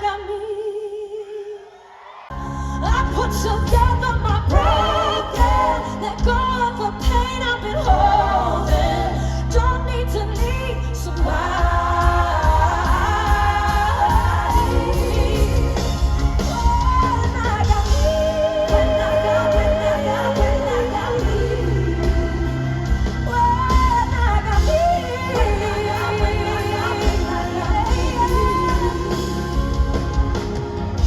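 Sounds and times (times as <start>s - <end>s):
band with heavy bass: 2.3s - 31.0s.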